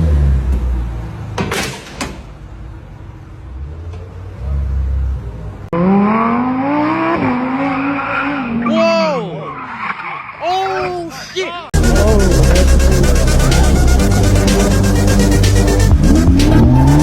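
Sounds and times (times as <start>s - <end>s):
car engine revving: 2.5s - 8.7s, 11.8s - 17.0s
car engine rumbling: 11.8s - 17.0s.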